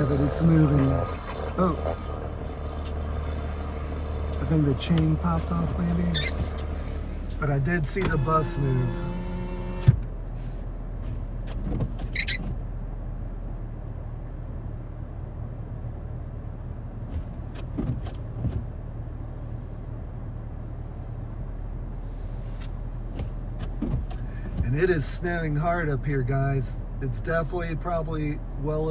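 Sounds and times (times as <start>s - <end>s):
vehicle engine idling: 0.0s - 28.9s
short squeak: 5.7s - 7.0s, 12.0s - 12.6s.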